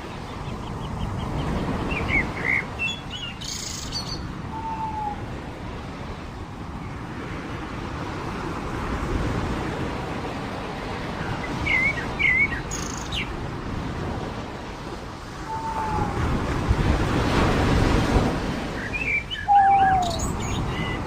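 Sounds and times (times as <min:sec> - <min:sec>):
surf washing on a beach: 0:00.0 - 0:21.0
bird chirping: 0:18.8 - 0:21.0.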